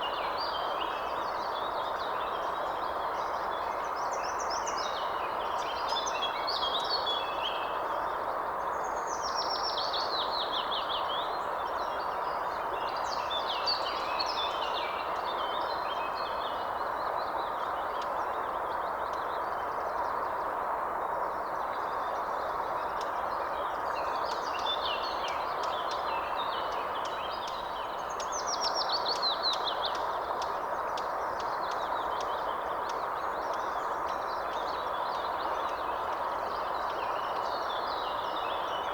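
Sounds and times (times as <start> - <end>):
steady background hiss: 0.0 - 38.9
songbirds singing: 21.4 - 38.9.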